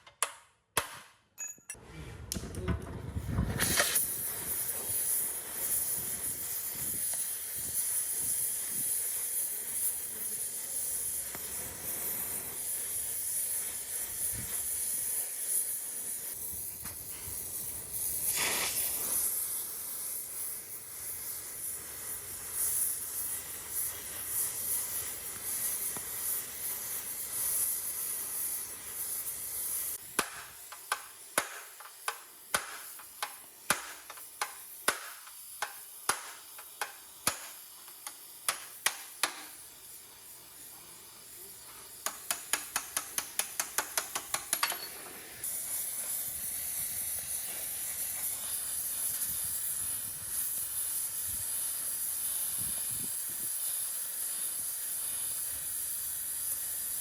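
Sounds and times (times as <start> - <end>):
steady hiss: 3.1 - 57.0
sharp ticks: 42.0 - 44.8.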